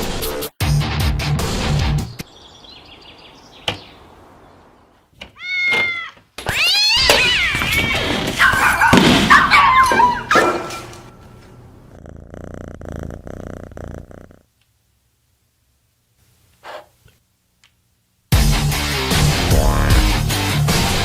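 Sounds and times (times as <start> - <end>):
music: 0.0 - 2.2, 18.3 - 21.0
cat meowing: 5.4 - 8.2
cat yowling: 5.4 - 10.4.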